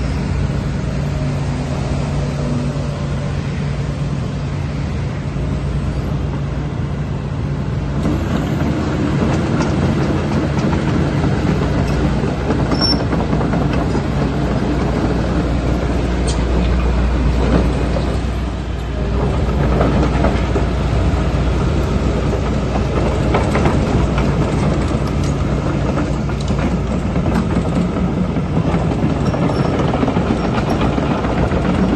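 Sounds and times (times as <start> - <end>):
excavator engine drone: 0.0 - 31.9.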